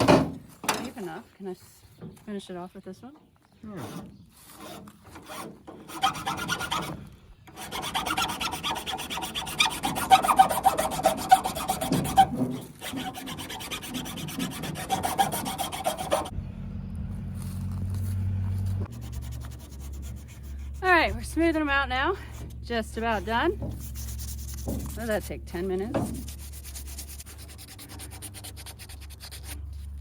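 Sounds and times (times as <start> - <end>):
hand tool rasping wood: 3.7 - 16.3, 18.7 - 29.6
steady low hum: 15.4 - 29.2.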